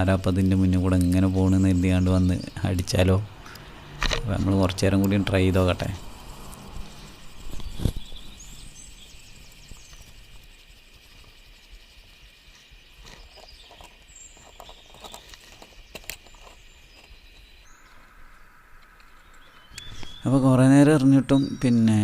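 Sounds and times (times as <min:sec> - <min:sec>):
high-pitched drone: 0:03.0 - 0:10.5.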